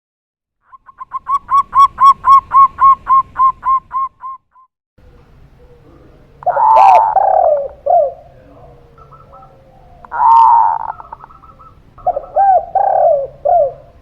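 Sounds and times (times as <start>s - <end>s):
dove cooing: 0.8s - 4.1s, 5.0s - 14.0s.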